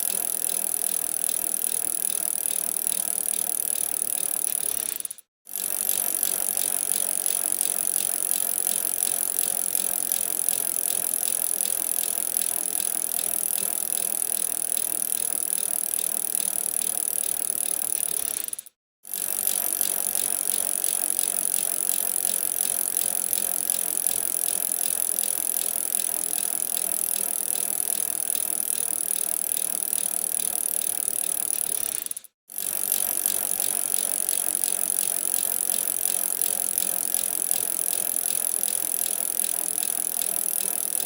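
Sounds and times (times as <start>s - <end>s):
bicycle rattling while ridden: 0.0s - 41.0s.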